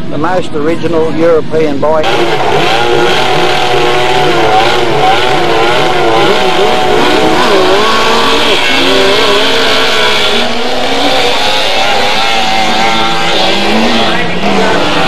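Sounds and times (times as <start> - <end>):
racing engines revving: 0.0 - 15.0.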